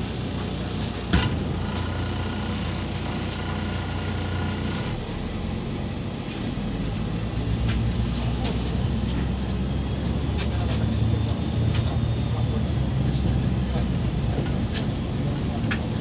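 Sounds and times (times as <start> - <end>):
bus engine and road noise: 0.0 - 16.0.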